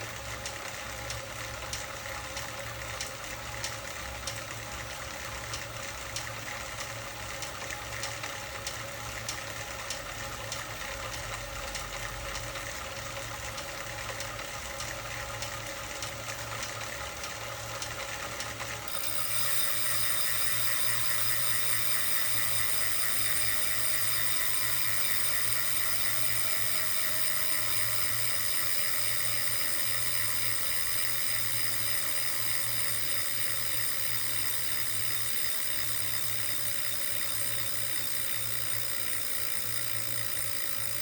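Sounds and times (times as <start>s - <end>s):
steady mechanical hum: 0.0s - 41.0s.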